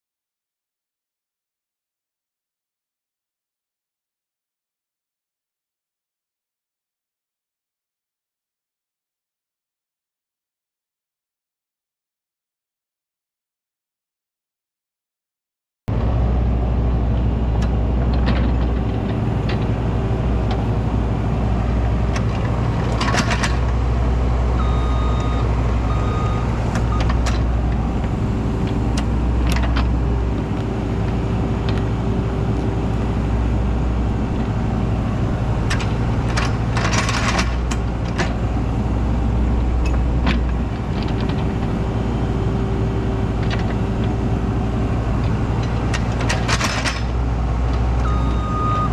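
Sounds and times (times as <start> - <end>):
engine whine: 15.9 - 48.9
excavator diesel engine running: 15.9 - 48.9
digging scraping and clanking: 22.1 - 23.8, 35.6 - 38.4.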